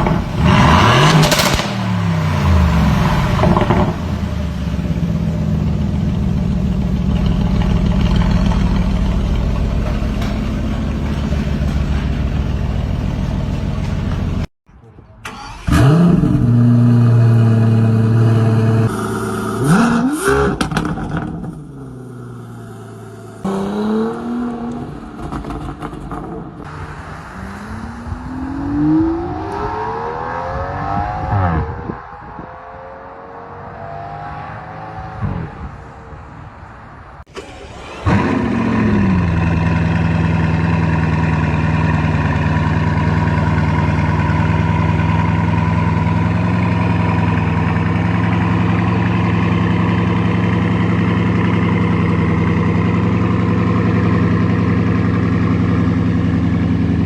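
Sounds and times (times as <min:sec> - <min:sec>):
car accelerating: 0:00.0 - 0:14.5, 0:15.2 - 0:57.0
car engine revving: 0:00.0 - 0:14.5, 0:15.2 - 0:36.1, 0:37.2 - 0:57.0
engine starting and idling: 0:00.0 - 0:14.5, 0:15.2 - 0:16.6, 0:37.3 - 0:57.0.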